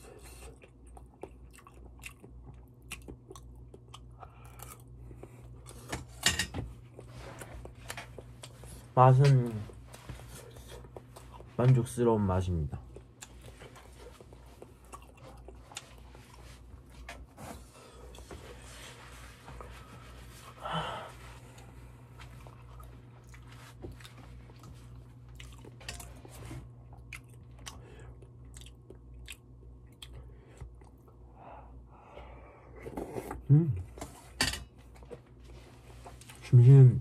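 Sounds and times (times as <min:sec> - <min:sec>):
person chewing food: 0:00.0 - 0:11.6, 0:12.7 - 0:18.9, 0:21.4 - 0:31.2
faint low hum: 0:00.0 - 0:37.0.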